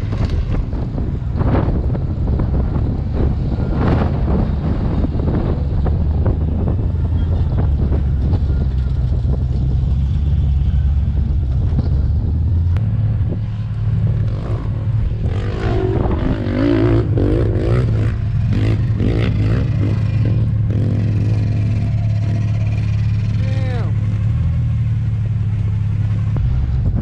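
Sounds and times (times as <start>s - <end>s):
wind on microphone: 0.0s - 24.1s, 26.3s - 27.0s
vehicle engine revving: 0.0s - 27.0s.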